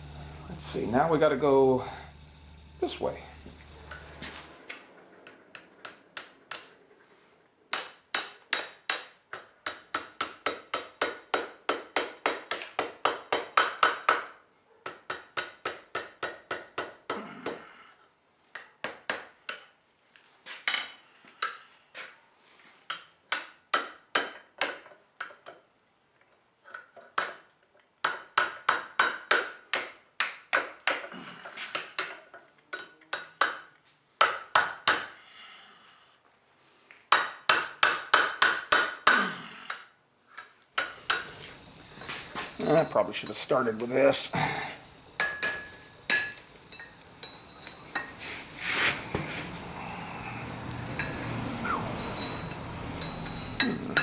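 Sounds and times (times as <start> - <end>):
hammer striking steel on anvil: 7.7 - 17.6, 18.6 - 19.8, 28.0 - 31.0, 31.7 - 32.2, 33.1 - 35.2, 40.8 - 41.7, 45.2 - 48.2, 50.7 - 54.0
faint high ring: 50.8 - 54.0.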